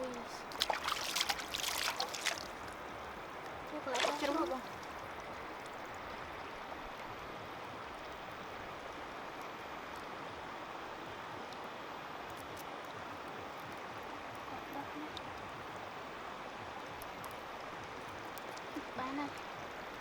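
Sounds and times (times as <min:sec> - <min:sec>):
running water rushing: 0:00.0 - 0:06.3.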